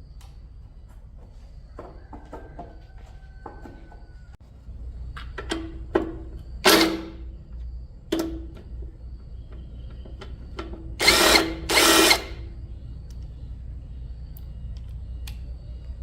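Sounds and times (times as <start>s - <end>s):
power tool bursts: 6.6s - 7.2s, 11.0s - 12.4s.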